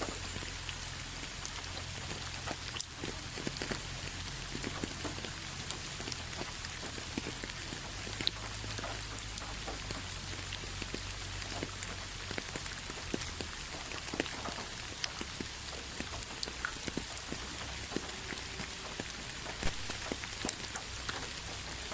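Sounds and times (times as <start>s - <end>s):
raindrops pattering: 0.0s - 21.9s.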